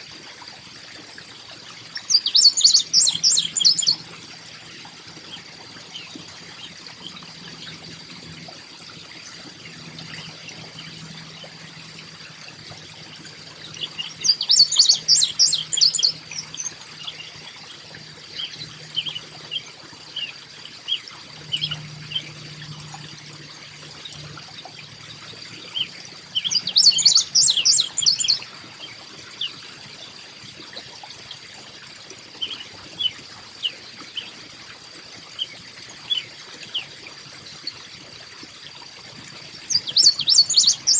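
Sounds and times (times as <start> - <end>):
songbirds singing: 1.2 - 30.3, 32.4 - 34.5, 35.4 - 37.9, 39.2 - 40.9.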